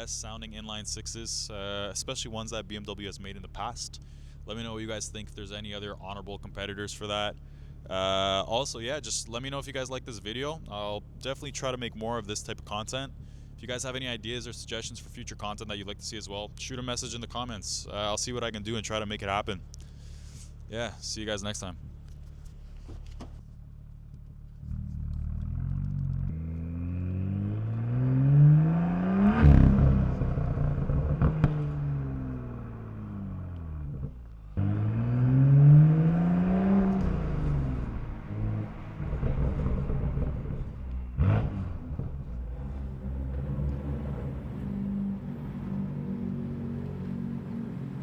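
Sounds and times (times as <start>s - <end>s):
car engine revving: 23.7s - 48.0s
sharp exhaust crack: 36.4s - 46.0s.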